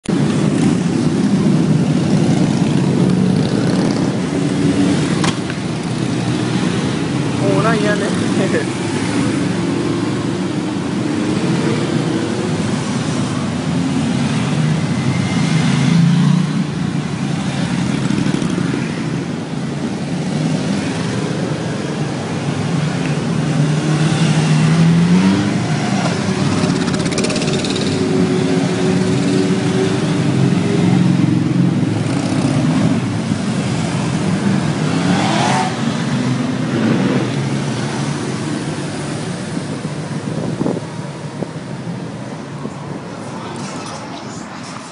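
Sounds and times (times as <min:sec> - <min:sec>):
motorcycle engines revving: 0:00.1 - 0:44.9.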